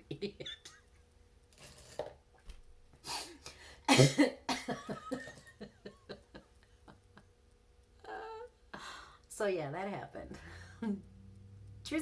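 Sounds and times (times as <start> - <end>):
woman laughing: 0.0 - 0.9, 3.9 - 7.3, 10.6 - 11.0
woman coughing: 3.9 - 5.5.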